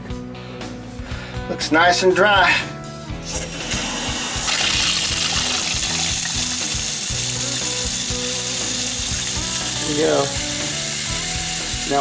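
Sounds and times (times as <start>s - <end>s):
faucet water running into sink: 3.2s - 12.0s.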